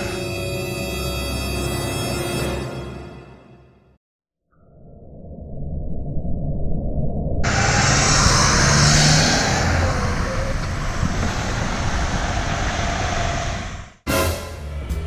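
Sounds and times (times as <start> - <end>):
city street traffic: 7.5 - 15.0.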